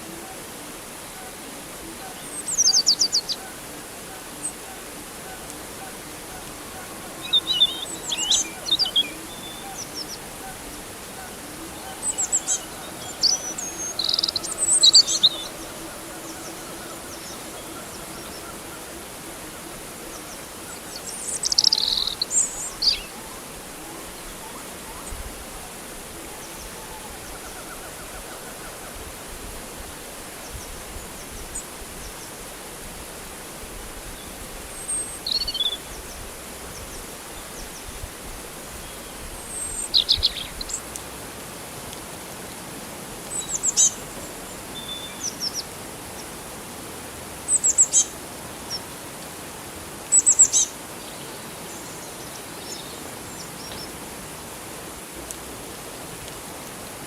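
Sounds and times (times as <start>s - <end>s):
steady background hiss: 0.0s - 57.0s
birds chirping: 2.1s - 28.8s.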